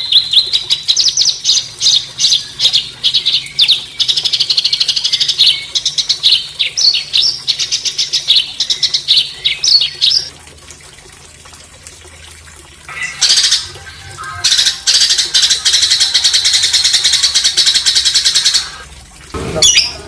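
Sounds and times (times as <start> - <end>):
songbird rattling trills: 12.9 - 18.8.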